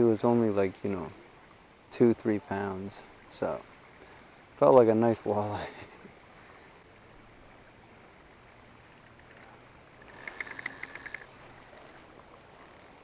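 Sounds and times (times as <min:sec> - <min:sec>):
faint outdoor background: 0:00.0 - 0:13.0
fishing reel ticking: 0:08.9 - 0:13.0.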